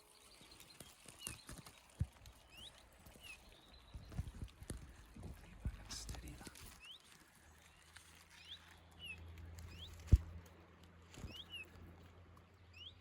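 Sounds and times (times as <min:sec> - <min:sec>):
songbird call notes: 0:05.2 - 0:10.4, 0:11.2 - 0:11.8, 0:12.6 - 0:13.0.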